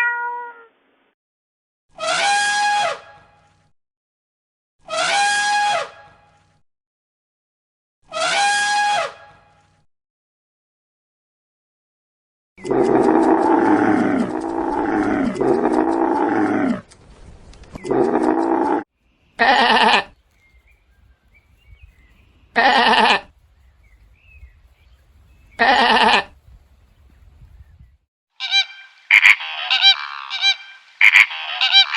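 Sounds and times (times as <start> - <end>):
farm animal bleating: 12.7 - 16.8, 17.8 - 18.8, 19.4 - 20.2, 22.5 - 23.3, 25.5 - 26.4, 28.4 - 31.9.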